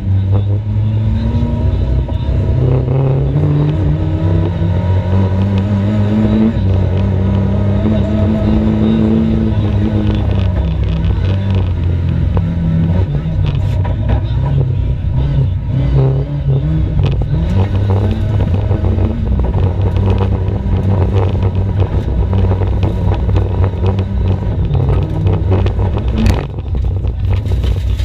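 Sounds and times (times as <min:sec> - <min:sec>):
racing car engine revving: 0:00.0 - 0:28.0.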